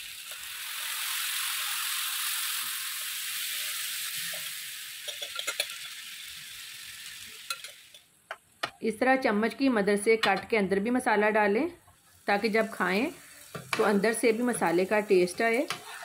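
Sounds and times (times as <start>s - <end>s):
chicken sizzling in hot oil: 0.0s - 8.1s, 12.0s - 16.0s.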